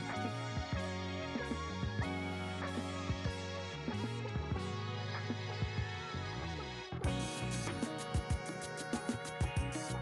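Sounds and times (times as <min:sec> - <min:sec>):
melody over steady beat: 0:07.0 - 0:10.0.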